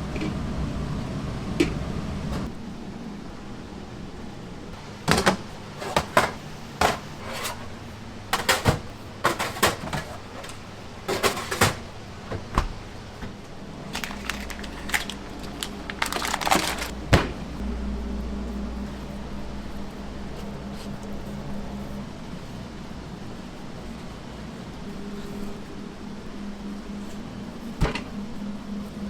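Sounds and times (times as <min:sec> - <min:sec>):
low steady hum: 0:00.0 - 0:29.0
utensils and cookware clattering: 0:04.8 - 0:12.0, 0:13.9 - 0:16.9.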